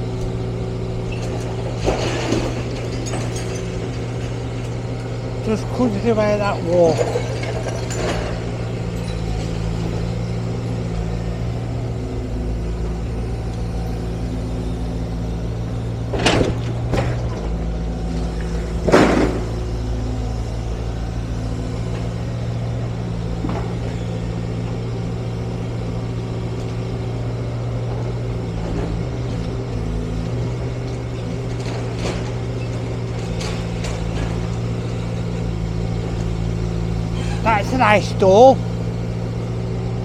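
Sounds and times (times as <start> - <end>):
diesel engine running: 0.0 - 40.0
building crashing down: 16.2 - 19.9.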